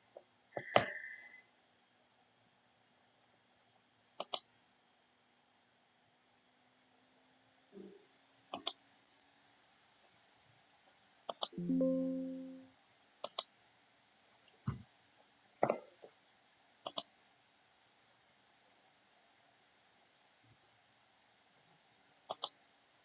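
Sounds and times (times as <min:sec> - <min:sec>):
computer mouse clicking: 0:04.2 - 0:04.5, 0:08.5 - 0:08.8, 0:11.3 - 0:11.6, 0:13.2 - 0:13.5, 0:16.8 - 0:17.1, 0:22.3 - 0:22.6
short pitched tone: 0:11.6 - 0:12.6.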